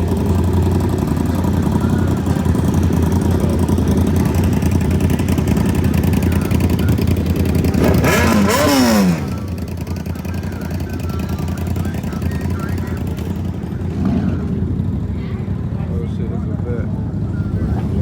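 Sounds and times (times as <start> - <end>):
vehicle engines idling: 0.0 - 18.0
engine revving: 2.6 - 9.8, 17.5 - 18.0.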